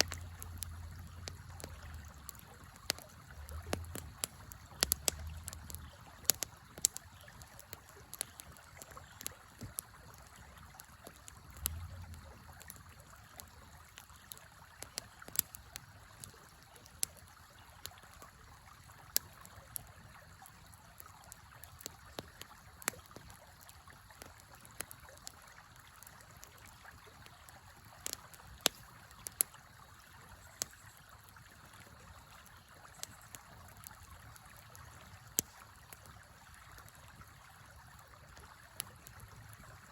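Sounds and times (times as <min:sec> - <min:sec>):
river flowing: 0:00.0 - 0:14.4
campfire crackling and popping: 0:00.0 - 0:39.9.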